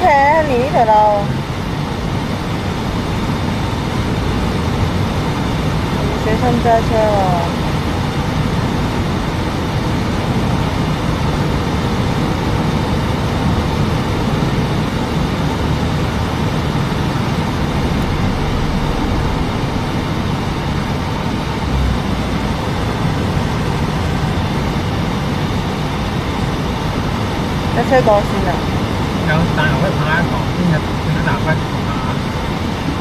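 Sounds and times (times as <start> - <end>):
car road noise from inside: 0.0 - 33.0.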